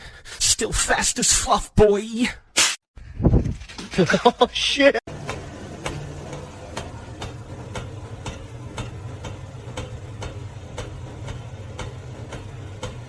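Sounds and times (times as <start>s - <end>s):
steady low hum: 5.1s - 13.0s
even ticking: 5.2s - 13.0s.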